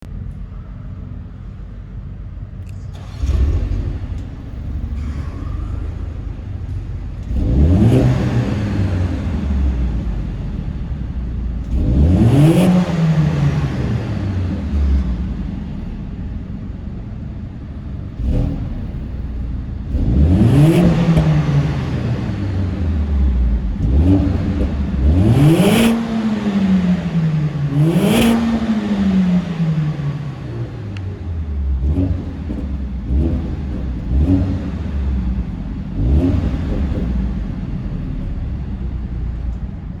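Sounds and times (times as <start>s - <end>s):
exhaust cracks: 0.0s - 40.0s
car engine revving: 2.6s - 40.0s.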